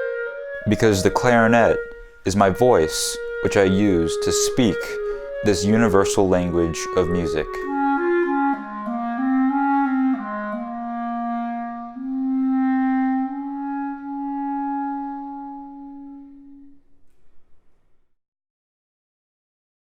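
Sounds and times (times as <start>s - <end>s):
solo clarinet playing: 0.0s - 17.0s.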